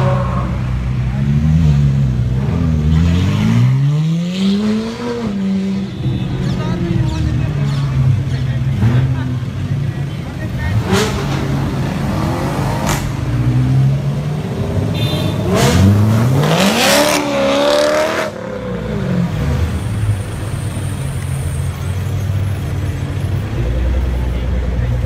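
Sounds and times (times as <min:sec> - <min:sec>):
car engine revving: 0:10.5 - 0:19.8.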